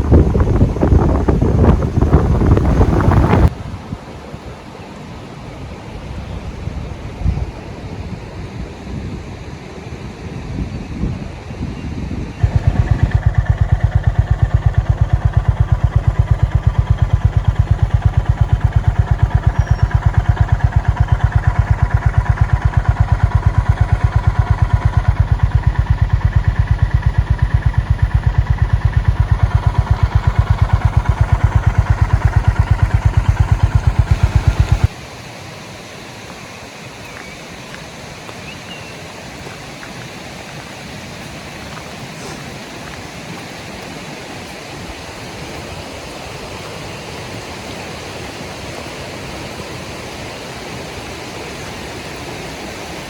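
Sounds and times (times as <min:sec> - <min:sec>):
motorcycle engine idling: 0:00.0 - 0:03.5, 0:12.4 - 0:35.1
soft steady rushing noise: 0:12.4 - 0:53.0.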